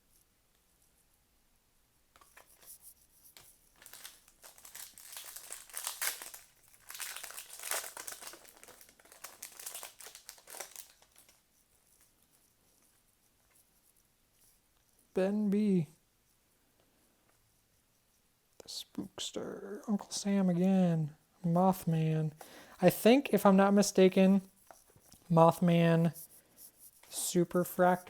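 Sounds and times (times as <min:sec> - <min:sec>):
plastic wrapper crinkling: 0:03.3 - 0:11.4.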